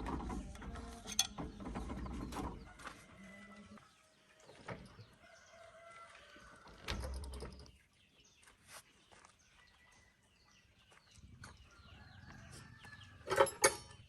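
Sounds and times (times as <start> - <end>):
faint farmyard fowl calls: 2.4 - 4.4, 5.1 - 6.8.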